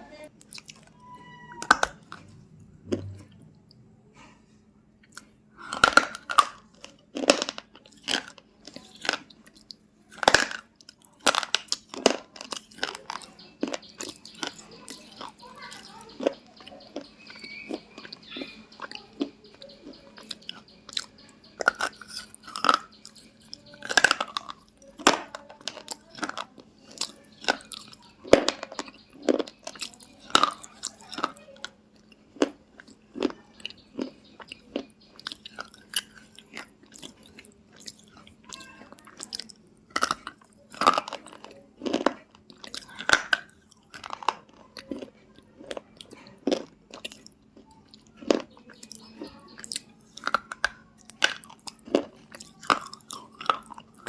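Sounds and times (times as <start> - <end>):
crunchy chewing: 0.4 - 3.8, 5.0 - 54.0.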